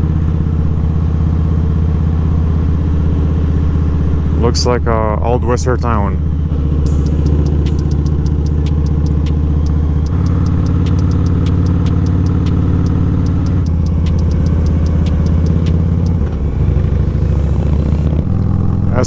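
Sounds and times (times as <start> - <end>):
motorcycle engine running: 6.2 - 19.0.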